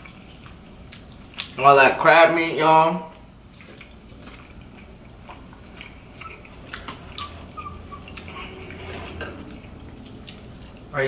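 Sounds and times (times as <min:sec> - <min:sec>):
mouth chewing sounds: 0:00.0 - 0:01.6, 0:03.1 - 0:08.6
forks scraping plastic trays: 0:05.4 - 0:10.8.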